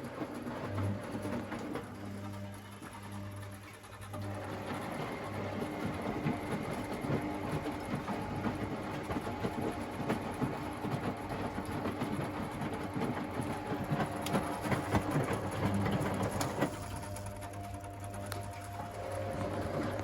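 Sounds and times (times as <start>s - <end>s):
washing machine motor hum: 0.0s - 20.0s
washing machine drum rattling: 4.4s - 20.0s.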